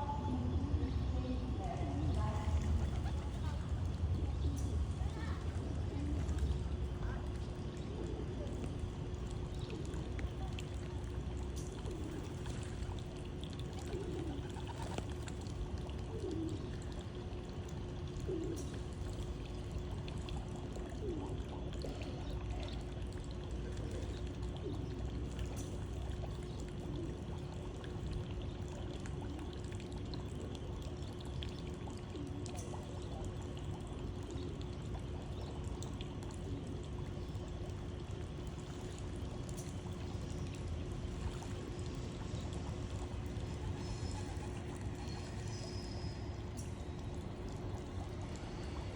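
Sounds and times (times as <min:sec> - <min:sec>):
faint steady hum: 0:00.0 - 0:48.9
pigeons cooing: 0:02.1 - 0:05.5, 0:06.3 - 0:19.6, 0:20.3 - 0:28.2, 0:42.0 - 0:46.7.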